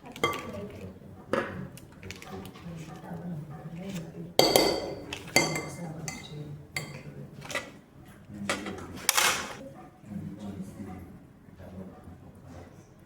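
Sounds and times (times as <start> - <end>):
spoon clinking against bowl: 0.1 - 1.5, 4.4 - 7.6.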